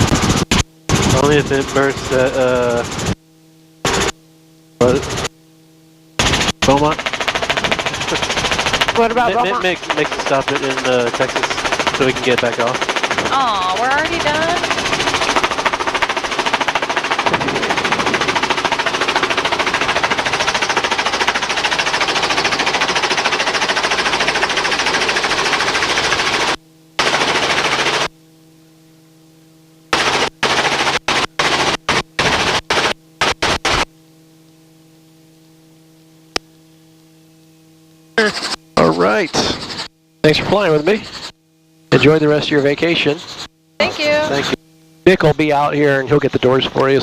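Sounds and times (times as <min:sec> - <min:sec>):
helicopter rotor chop: 0:00.0 - 0:03.2, 0:03.8 - 0:04.2, 0:04.8 - 0:05.3, 0:06.2 - 0:28.2, 0:29.9 - 0:34.0, 0:38.1 - 0:47.0
helicopter engine noise: 0:00.0 - 0:04.2, 0:04.8 - 0:05.4, 0:06.2 - 0:47.0
steady electrical hum: 0:00.0 - 0:47.0.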